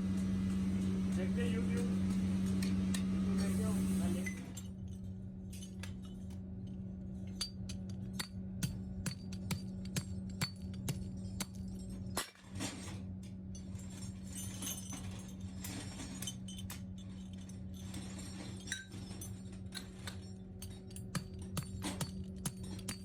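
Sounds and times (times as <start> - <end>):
workshop machinery humming: 0.0 - 23.0
metal parts clinking: 13.6 - 23.0.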